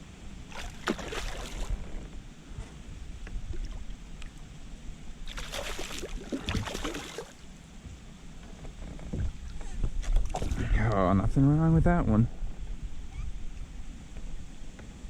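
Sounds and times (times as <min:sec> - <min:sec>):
wind rumble on microphone: 0:00.0 - 0:05.3, 0:07.8 - 0:15.0
fish splashing at surface: 0:00.5 - 0:01.8, 0:05.3 - 0:07.4.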